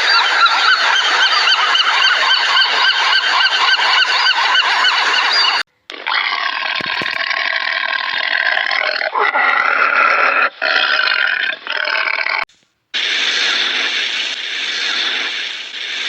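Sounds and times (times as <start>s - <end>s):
animal calling: 0.0s - 12.4s.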